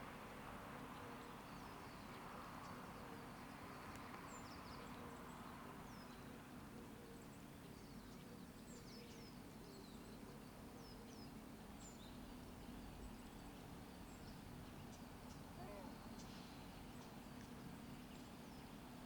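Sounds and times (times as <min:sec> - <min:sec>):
distant road traffic hum: 0:00.0 - 0:06.8.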